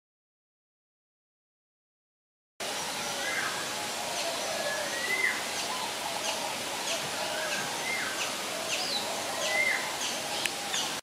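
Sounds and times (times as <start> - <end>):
background hiss: 2.6 - 11.0
birds chirping: 2.6 - 11.0.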